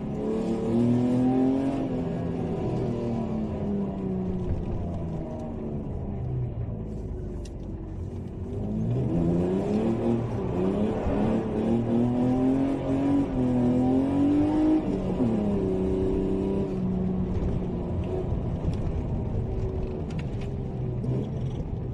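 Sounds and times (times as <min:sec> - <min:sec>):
car engine revving: 0:08.4 - 0:21.7.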